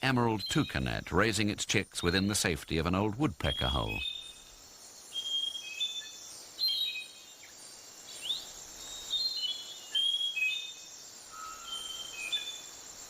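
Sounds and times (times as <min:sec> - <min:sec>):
insects hissing: 0:00.2 - 0:13.0
birds whistling: 0:03.4 - 0:07.2, 0:08.2 - 0:12.7.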